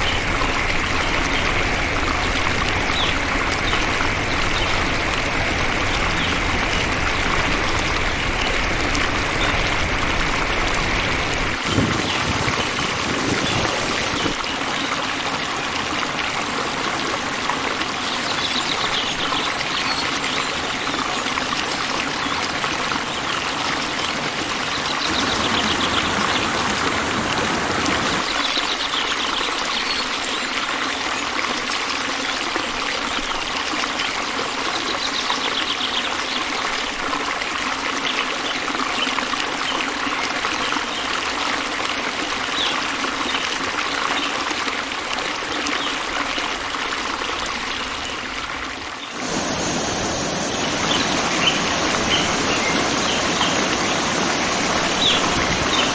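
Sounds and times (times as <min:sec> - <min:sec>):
running water: 0:00.0 - 0:28.6, 0:38.6 - 0:55.9
faint bird chirps: 0:49.1 - 0:55.9.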